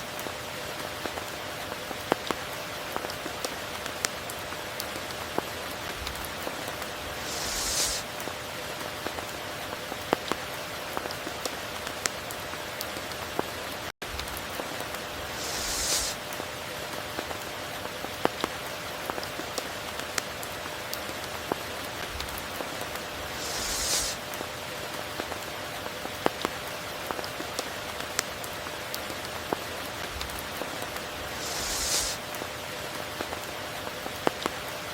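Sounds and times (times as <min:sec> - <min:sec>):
rain drops striking a surface: 0:00.0 - 0:34.9
raindrops ticking: 0:00.2 - 0:07.4.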